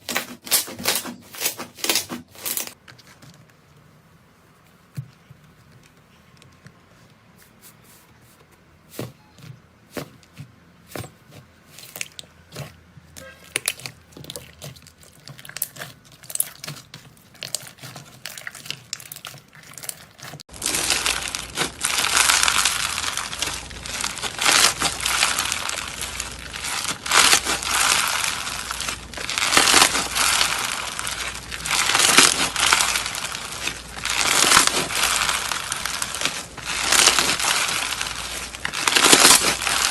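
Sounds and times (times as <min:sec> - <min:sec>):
slime squished with sticky crackles: 0:11.3 - 0:39.9.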